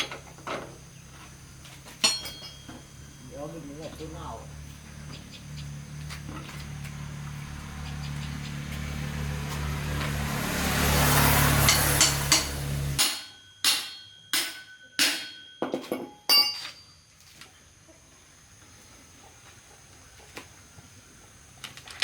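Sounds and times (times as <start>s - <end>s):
hammer striking metal: 2.0s - 2.9s, 11.6s - 16.9s.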